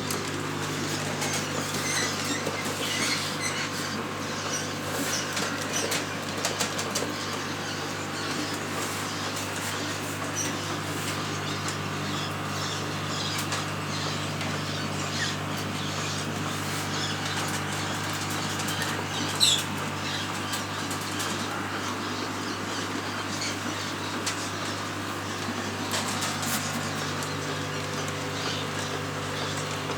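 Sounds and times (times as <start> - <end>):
birds fluttering and rustling: 0.1 - 29.9.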